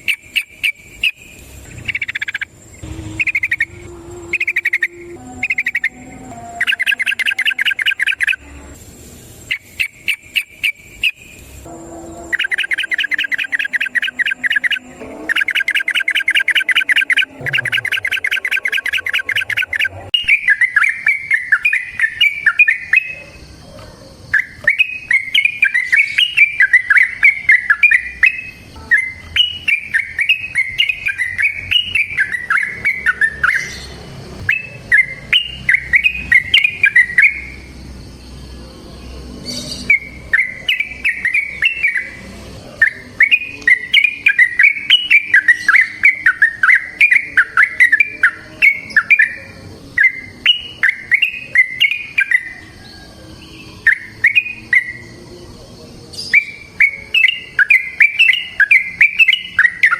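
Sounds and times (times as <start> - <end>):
bird singing fast trills: 0.0 - 59.9.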